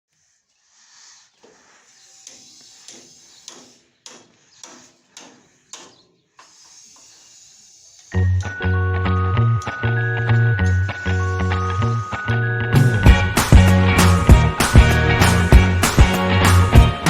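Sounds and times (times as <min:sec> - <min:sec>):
steady hiss: 0:00.1 - 0:05.6
loud music with steady beat: 0:12.8 - 0:17.0.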